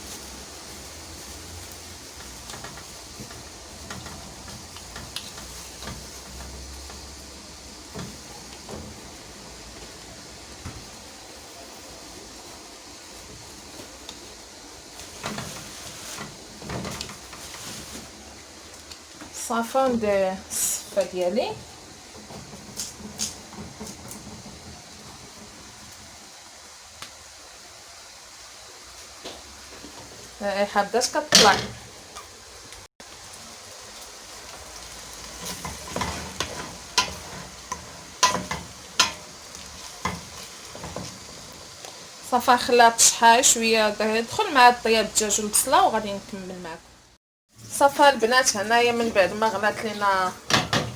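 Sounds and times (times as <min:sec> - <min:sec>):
food sizzling in hot oil: 0:00.0 - 0:50.9
steady hiss: 0:00.0 - 0:50.9
utensil scraping a pot: 0:20.6 - 0:26.1, 0:35.3 - 0:41.8
cookware clattering: 0:31.3 - 0:31.8, 0:35.4 - 0:41.2, 0:49.8 - 0:50.9.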